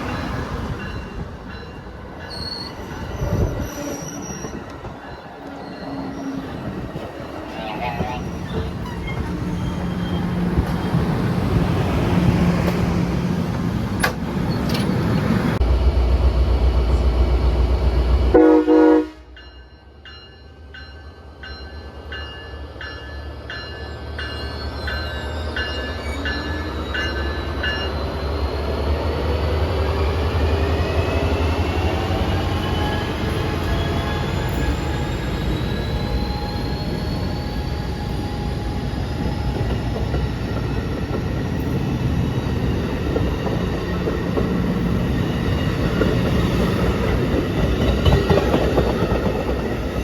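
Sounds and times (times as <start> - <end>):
crossing bell dinging: 0.0 - 3.5, 18.4 - 28.2
train wheel noise: 0.0 - 18.5, 21.6 - 50.0
diesel locomotive engine rumble: 0.0 - 50.0
train horn note: 18.3 - 19.4.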